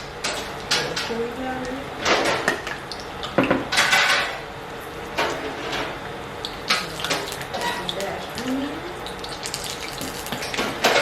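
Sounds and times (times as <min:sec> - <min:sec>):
metal pans and utensils clattering: 0:00.2 - 0:01.3, 0:02.0 - 0:02.8, 0:03.4 - 0:04.4, 0:05.2 - 0:06.0, 0:06.7 - 0:08.5, 0:10.1 - 0:11.0.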